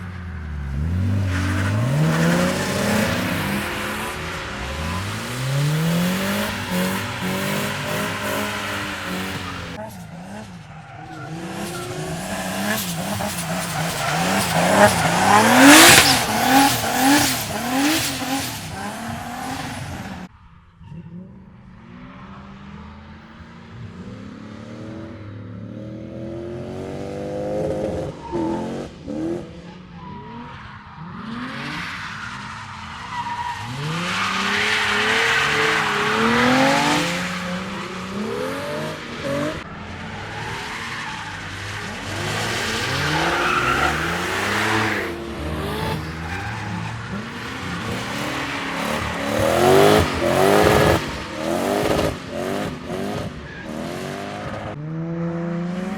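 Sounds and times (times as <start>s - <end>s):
car engines revving: 0.0s - 55.9s
tyre squeal: 1.2s - 20.2s, 31.6s - 54.4s.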